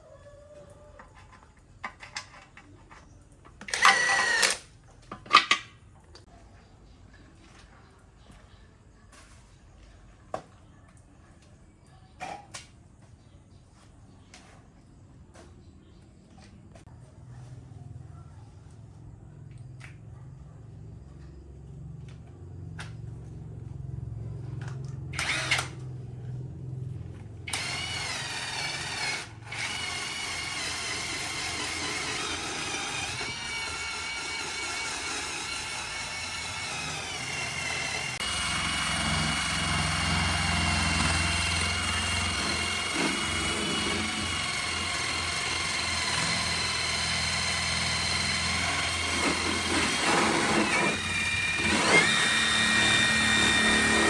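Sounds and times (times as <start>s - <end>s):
power tool whining: 3.6s - 4.6s, 25.1s - 25.8s, 27.4s - 54.0s.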